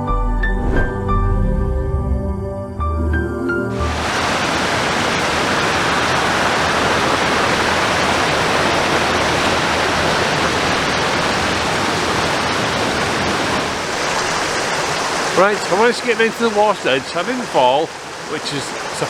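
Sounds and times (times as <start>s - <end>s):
waterfall rushing over rocks: 3.8s - 19.0s.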